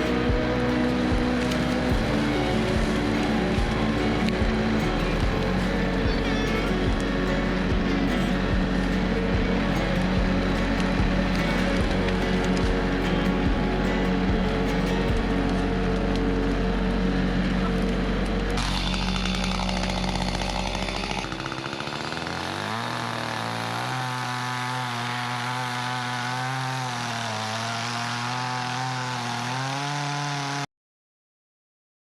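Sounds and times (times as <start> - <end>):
engine running: 0.0 - 30.5.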